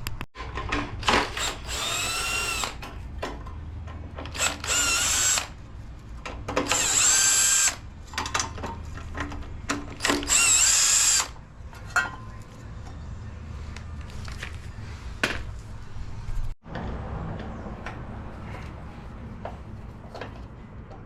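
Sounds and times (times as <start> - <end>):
cordless power driver whirring: 1.0 - 2.8, 4.3 - 5.6, 6.6 - 7.8, 10.0 - 11.4.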